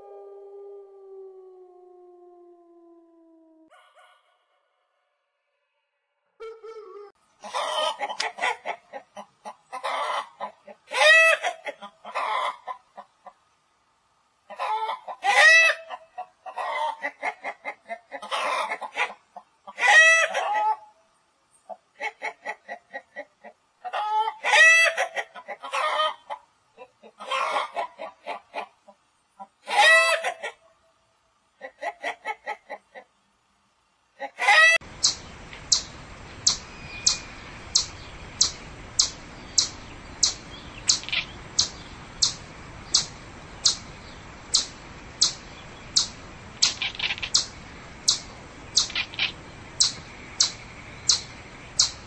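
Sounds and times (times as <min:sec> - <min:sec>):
hens clucking and squawking: 0:06.4 - 0:13.4, 0:14.5 - 0:20.9, 0:21.7 - 0:30.7, 0:31.6 - 0:33.1, 0:34.2 - 0:35.2, 0:46.7 - 0:47.5, 0:48.8 - 0:50.5.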